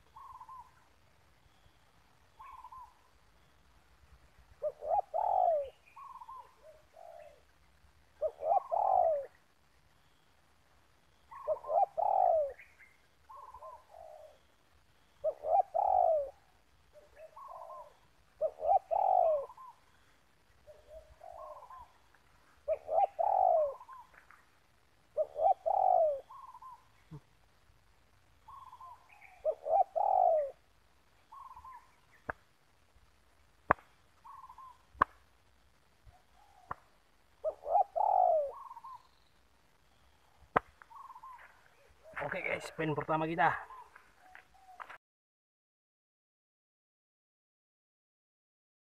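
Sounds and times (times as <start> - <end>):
doves cooing: 0.0 - 3.2, 4.5 - 10.2, 11.2 - 27.5, 28.4 - 32.4, 34.1 - 35.0, 36.0 - 45.0.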